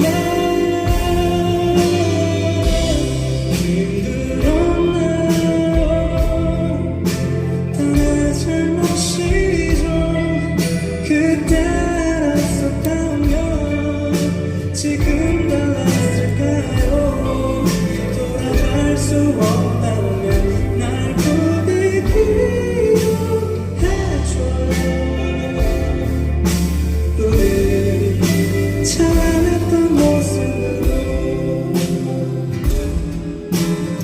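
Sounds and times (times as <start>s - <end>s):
live band playing pop ballad: 0.0s - 34.0s
steady drum beat: 0.0s - 34.0s.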